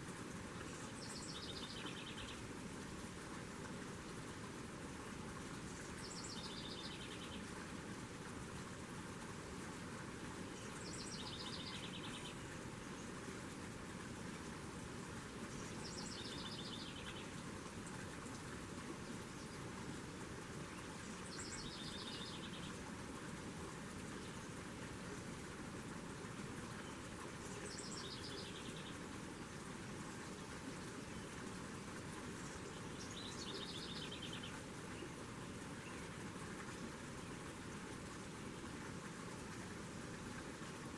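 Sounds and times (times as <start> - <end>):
songbird singing trills: 21.3 - 22.8, 27.5 - 29.0, 32.5 - 35.1.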